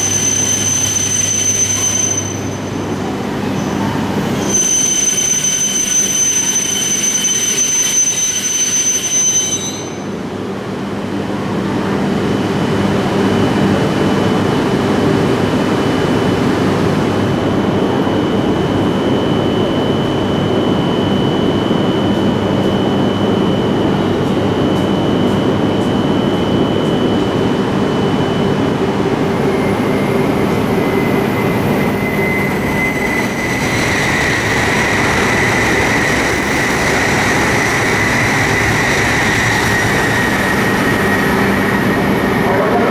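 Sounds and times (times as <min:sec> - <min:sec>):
high electric train whine: 0:00.0 - 0:42.9
train rushing rumble: 0:10.2 - 0:42.9.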